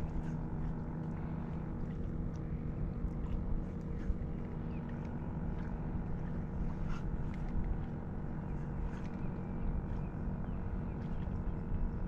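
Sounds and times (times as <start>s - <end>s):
low engine drone: 0.0s - 12.0s
faint light ticks: 1.8s - 5.8s, 6.9s - 8.0s.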